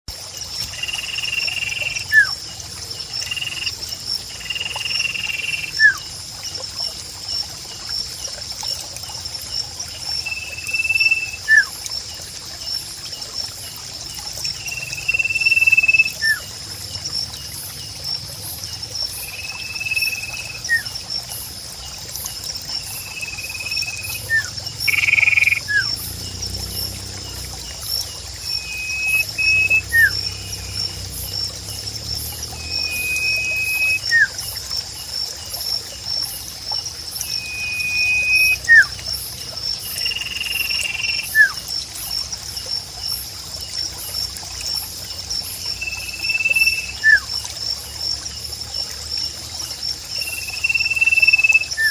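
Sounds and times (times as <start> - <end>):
high pulsing nature chorus: 0.1 - 51.9
bird whistling call: 23.6 - 25.9, 28.6 - 30.2, 32.6 - 34.3, 37.3 - 38.9, 40.9 - 41.6, 50.6 - 51.9.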